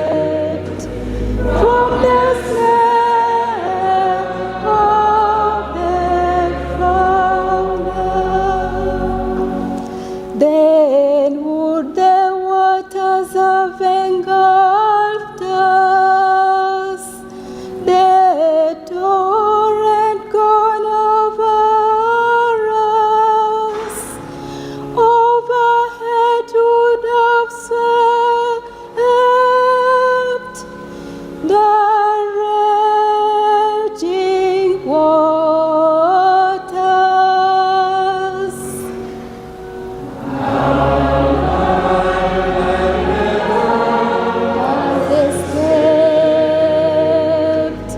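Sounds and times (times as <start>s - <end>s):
slow sacred singing: 0.0s - 24.3s, 24.9s - 47.9s.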